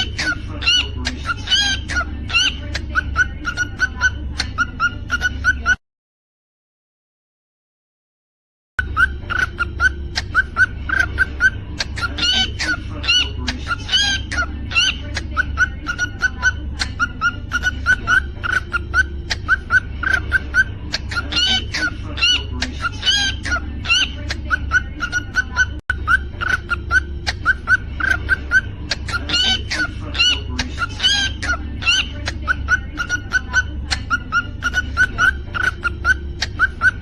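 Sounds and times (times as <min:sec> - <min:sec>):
cockatiel chirping: 0:00.0 - 0:05.8, 0:08.8 - 0:37.0
steady low hum: 0:08.8 - 0:37.0.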